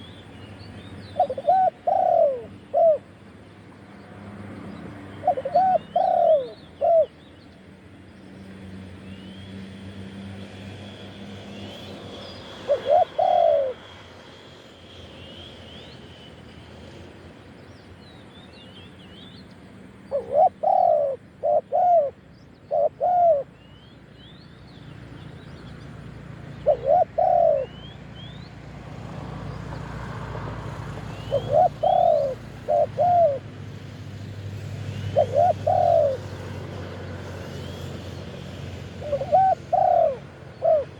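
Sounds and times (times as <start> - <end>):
dove cooing: 1.1 - 3.1, 5.2 - 7.2, 12.5 - 13.9, 20.1 - 23.6, 26.5 - 27.9, 31.1 - 33.6, 34.9 - 37.9, 38.6 - 40.9
small birds chirping: 31.0 - 33.4, 34.8 - 36.3.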